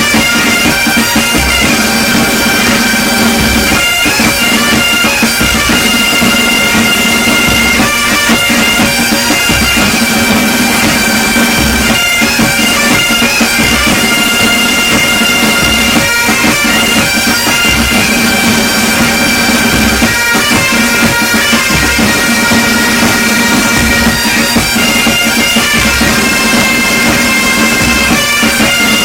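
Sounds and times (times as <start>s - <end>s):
bagpipes playing with drone: 0.0s - 29.0s
bass drum beat: 17.6s - 25.1s.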